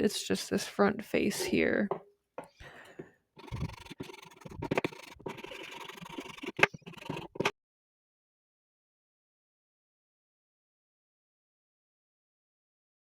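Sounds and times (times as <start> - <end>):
plastic scraping and rubbing: 3.4 - 7.5.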